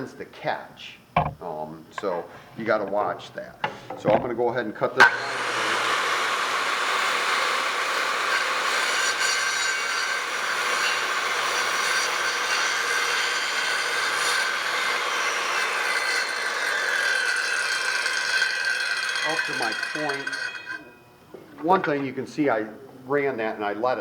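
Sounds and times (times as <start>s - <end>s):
circular saw cutting wood: 2.0s - 21.0s.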